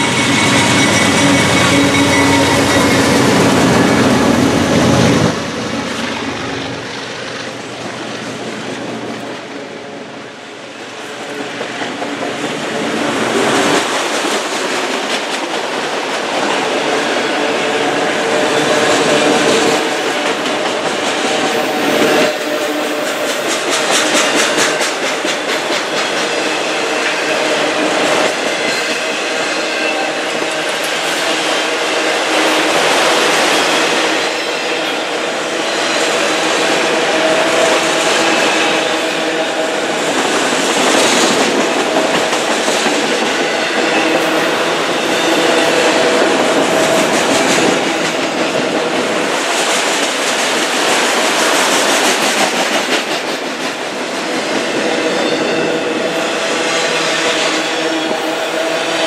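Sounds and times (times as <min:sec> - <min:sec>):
freight train passing: 0:00.0 - 0:59.0.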